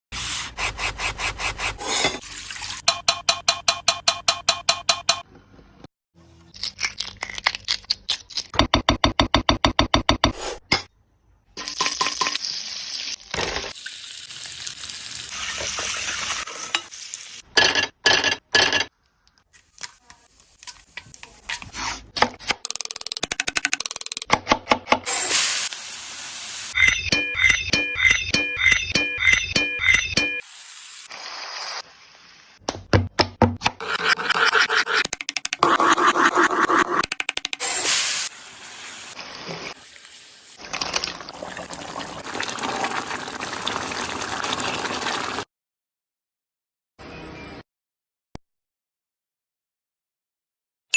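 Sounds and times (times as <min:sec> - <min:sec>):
food sizzling in frying: 0:11.6 - 0:17.5, 0:25.1 - 0:26.9, 0:30.4 - 0:32.6, 0:37.6 - 0:45.4.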